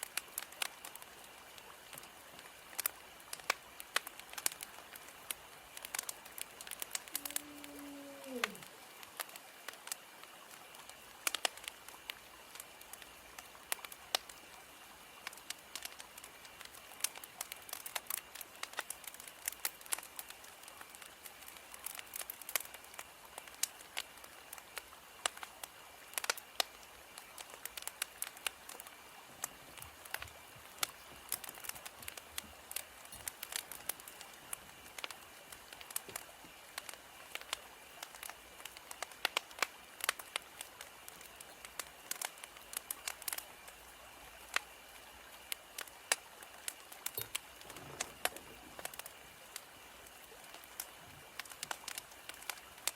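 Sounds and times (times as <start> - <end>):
faint steady hiss: 0.0 - 52.9
wood fire crackling: 0.0 - 52.9.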